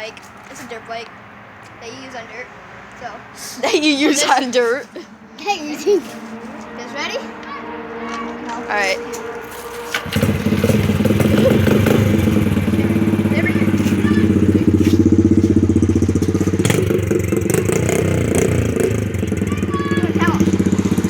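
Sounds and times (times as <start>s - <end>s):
small dirt bike engine running: 6.0s - 21.0s.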